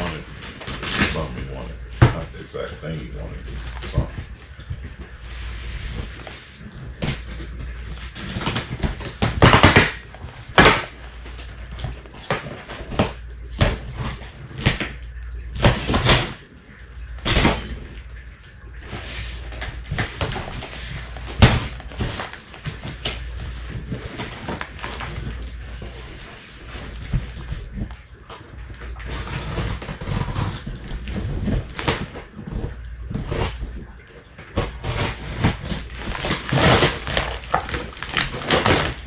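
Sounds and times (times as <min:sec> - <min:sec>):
cardboard ripping: 0:00.0 - 0:16.5, 0:18.8 - 0:39.0
steady low hum: 0:00.0 - 0:39.0
cardboard box rustling and scraping: 0:03.5 - 0:09.8.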